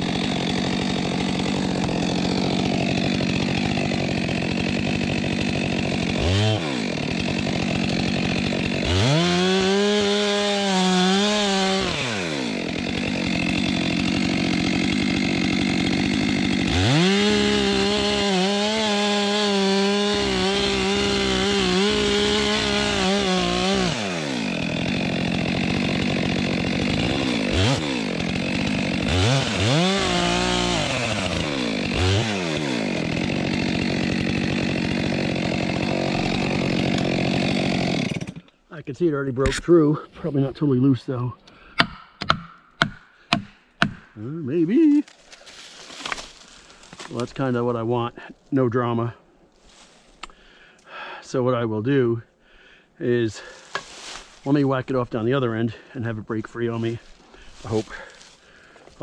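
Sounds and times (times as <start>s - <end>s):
chainsaw cutting a log: 0.0s - 38.5s, 41.8s - 44.2s, 45.3s - 47.5s, 56.8s - 59.0s.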